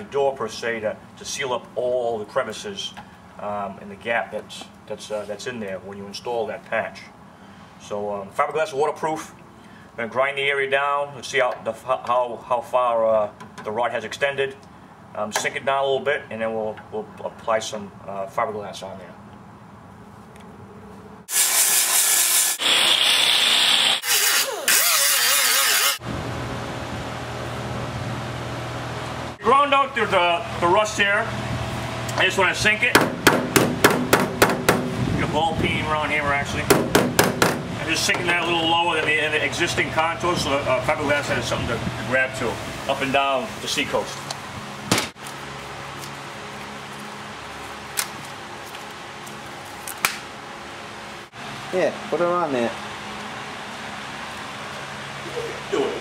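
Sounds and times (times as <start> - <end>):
grinder grinding metal: 21.3 - 26.0
steady quieter hum: 26.0 - 56.0
hammer striking sheet metal: 33.0 - 35.0, 36.7 - 38.3.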